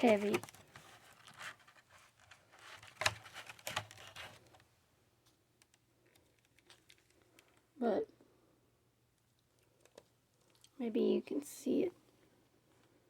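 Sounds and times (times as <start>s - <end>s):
handling clicks and knocks: 0.0s - 1.4s.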